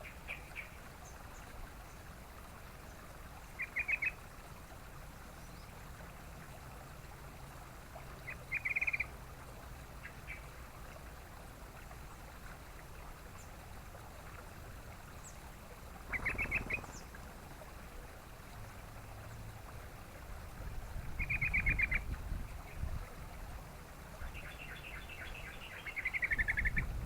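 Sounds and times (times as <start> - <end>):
bird chattering calls: 16.1 - 17.1.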